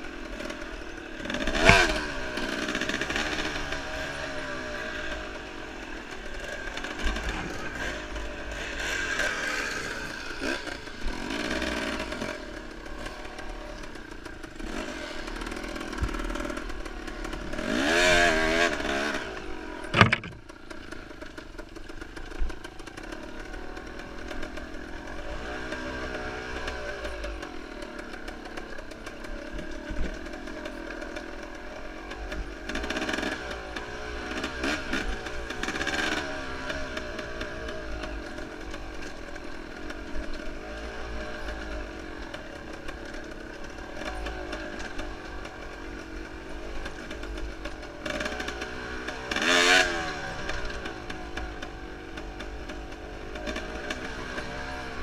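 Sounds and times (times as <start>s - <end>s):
motorcycle engine revving: 0.0s - 55.0s
knocks and clatter: 19.9s - 20.5s.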